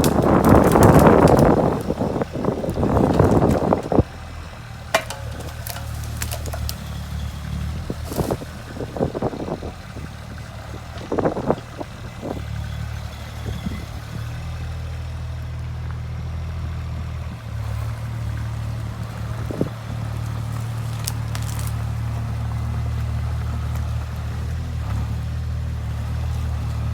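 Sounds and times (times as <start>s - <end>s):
sharp knocks and cracks: 0.0s - 1.9s, 4.9s - 7.0s, 20.7s - 21.8s
excavator diesel engine running: 0.0s - 26.9s.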